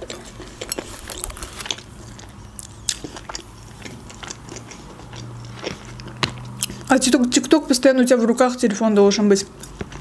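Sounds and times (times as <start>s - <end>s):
mouth clicks and crunches: 0.0s - 7.4s
person chewing food: 0.0s - 7.4s, 9.5s - 10.0s.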